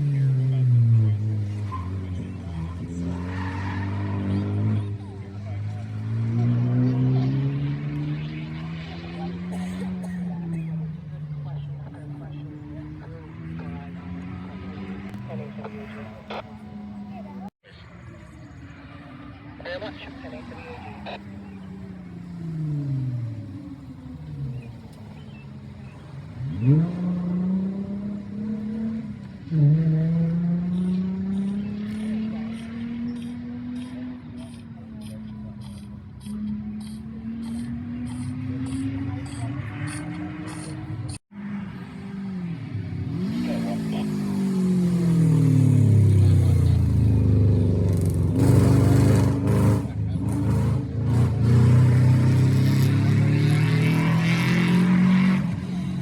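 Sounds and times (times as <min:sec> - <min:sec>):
rally car engine revving: 0:00.0 - 0:17.6, 0:18.4 - 0:56.0.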